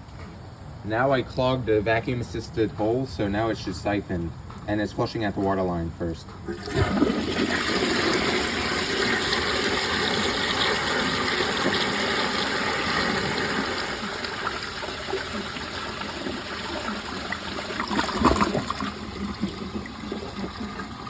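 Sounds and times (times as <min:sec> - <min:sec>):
toilet flushing: 0:06.5 - 0:21.0.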